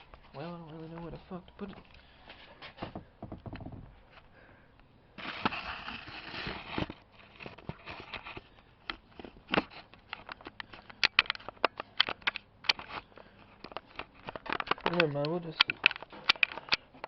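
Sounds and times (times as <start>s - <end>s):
camera handling noise: 5.4s - 17.0s
irregular clicks and taps: 8.9s - 17.0s.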